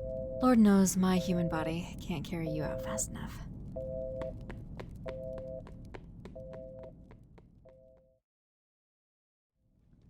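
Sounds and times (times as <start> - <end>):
two-note electronic alarm beeping: 0.0 - 1.8, 2.4 - 3.1, 3.8 - 4.4
low steady hum: 0.0 - 7.6.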